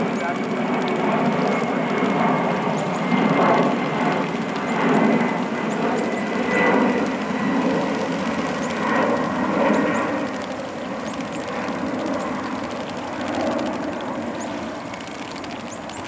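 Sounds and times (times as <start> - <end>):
birds splashing in water: 0.0 - 16.0.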